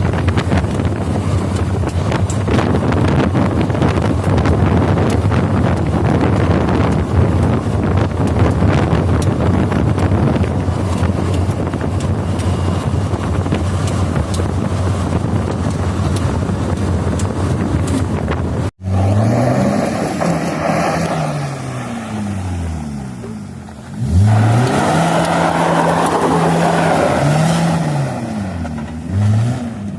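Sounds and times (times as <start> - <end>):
wind buffeting microphone: 0.0 - 18.8
car engine drone: 0.0 - 29.9
car engine revving: 0.0 - 29.9.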